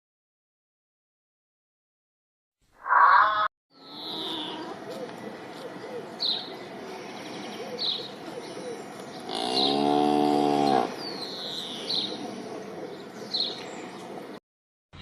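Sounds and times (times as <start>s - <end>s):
small birds chirping: 2.9s - 14.4s
cow mooing: 9.3s - 11.0s.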